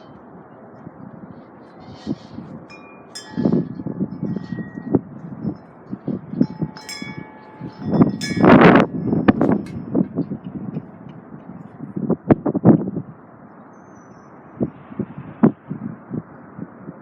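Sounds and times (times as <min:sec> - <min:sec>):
wind buffeting microphone: 0:00.0 - 0:13.7
wind chimes ringing: 0:02.7 - 0:11.7.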